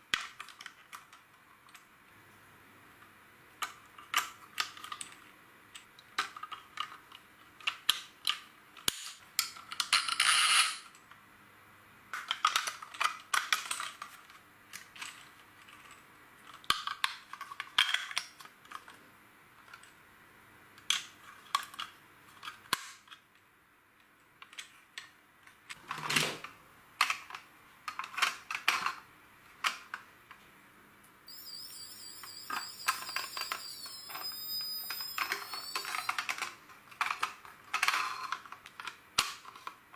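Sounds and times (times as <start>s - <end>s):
high wavering tone: 31.3s - 36.2s.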